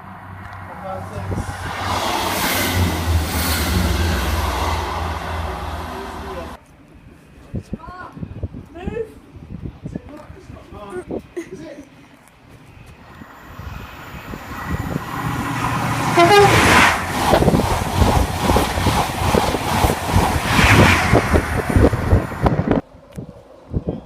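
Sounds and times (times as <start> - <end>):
train passing at speed: 0.0 - 6.6, 13.0 - 22.9
train horn toot: 16.1 - 16.9.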